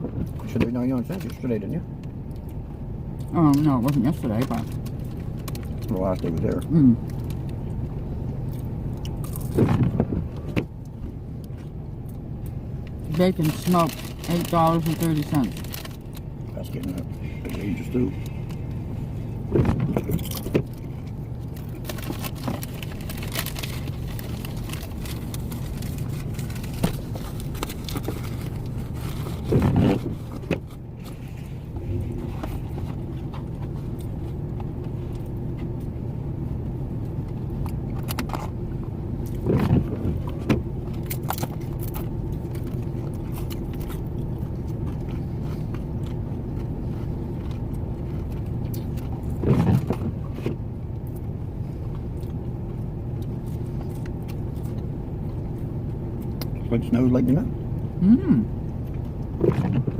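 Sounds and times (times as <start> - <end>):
rustling handling noise: 19.7 - 35.7.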